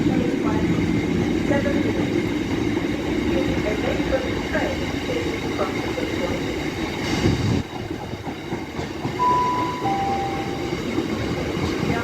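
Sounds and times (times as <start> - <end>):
train wheels rumbling on rail: 0.0 - 12.0
two-note tone: 9.2 - 10.9.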